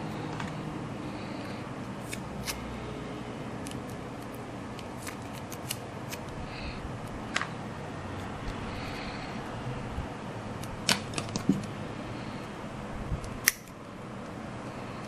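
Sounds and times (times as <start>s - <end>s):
steady low hum: 0.0s - 15.0s
scissors snipping paper: 3.7s - 6.2s.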